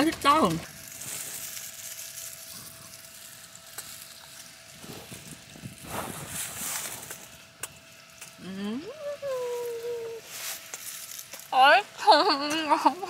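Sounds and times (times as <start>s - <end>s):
rustling: 0.7s - 7.4s.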